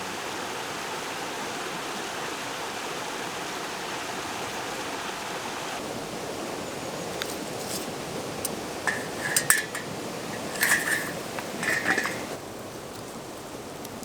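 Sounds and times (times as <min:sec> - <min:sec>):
metallic clinks: 0:08.9 - 0:12.4.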